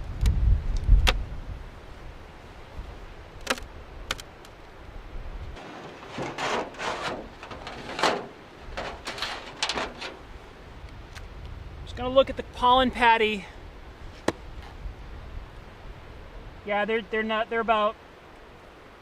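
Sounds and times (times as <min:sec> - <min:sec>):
wind buffeting microphone: 0:00.0 - 0:04.2, 0:07.1 - 0:16.7
scraping and rustling: 0:05.6 - 0:10.5.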